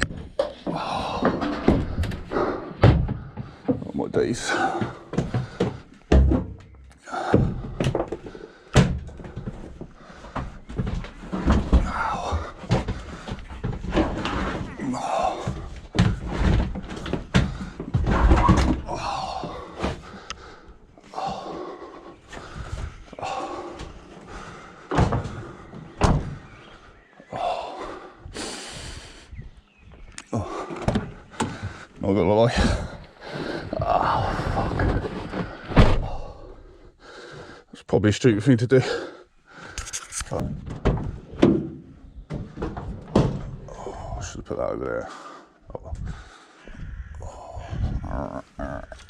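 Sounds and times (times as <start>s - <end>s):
heavy thuds and knocks: 0.0s - 20.6s, 21.2s - 26.6s, 32.5s - 36.4s, 40.4s - 44.2s.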